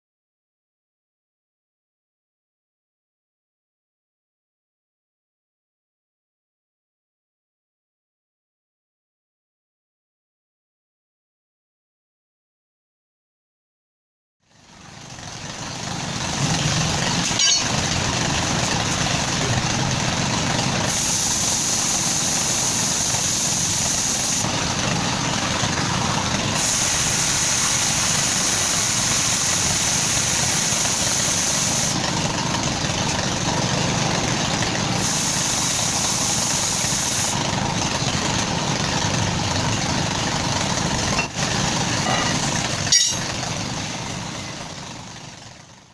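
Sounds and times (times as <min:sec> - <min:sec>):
engine running: 0:14.4 - 0:45.9
high hiss: 0:20.9 - 0:24.4, 0:26.6 - 0:32.0, 0:35.0 - 0:37.4.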